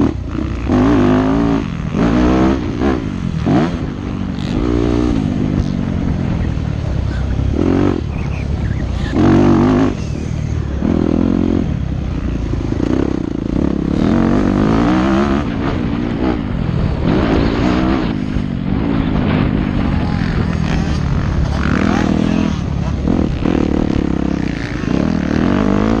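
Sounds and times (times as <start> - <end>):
motocross engine revving: 0.0 - 26.0.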